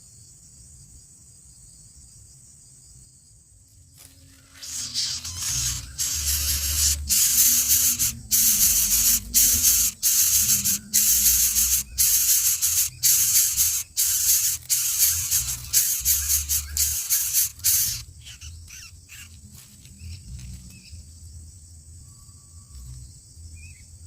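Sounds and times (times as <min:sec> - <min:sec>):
loud hissing noise: 0:04.5 - 0:18.4.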